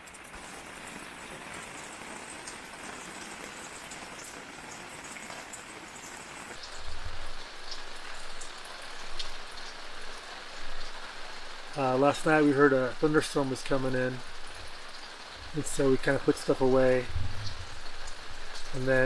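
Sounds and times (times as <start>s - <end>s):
raindrops ticking: 0.0s - 19.0s
steady rain falling: 0.0s - 19.0s
low thud: 17.1s - 17.8s.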